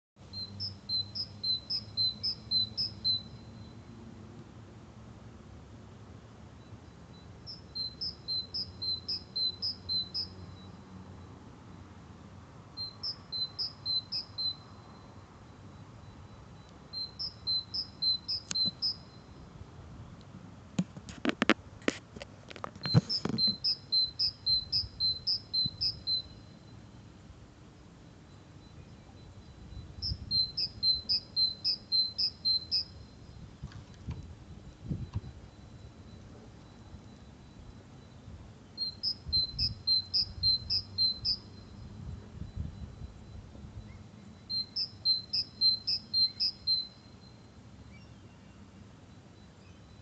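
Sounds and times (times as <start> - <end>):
bird singing: 0.2 - 3.9, 6.6 - 10.9, 12.8 - 20.2, 22.8 - 27.1, 27.8 - 34.0, 35.5 - 50.0
insect trill: 12.8 - 19.4, 28.0 - 33.5, 38.8 - 47.9.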